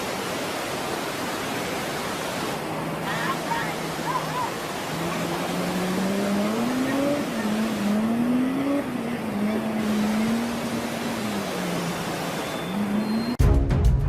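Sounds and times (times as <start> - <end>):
vehicle engine revving: 3.0 - 13.4.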